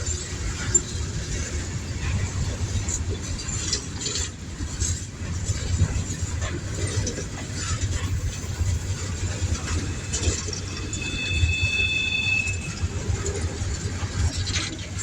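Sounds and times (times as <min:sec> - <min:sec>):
railcars rolling past: 0:00.0 - 0:15.0
high wheel squeal: 0:08.0 - 0:13.4.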